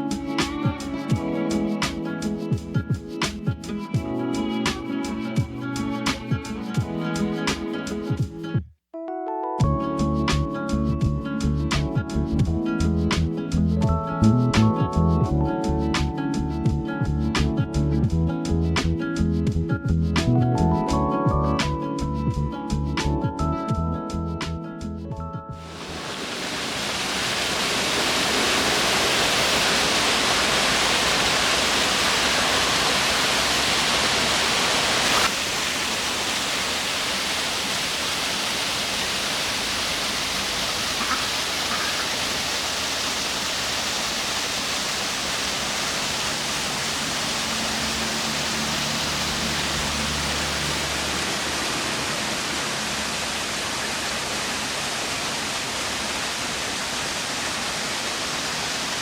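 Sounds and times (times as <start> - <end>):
waterfall rushing: 25.6 - 59.0.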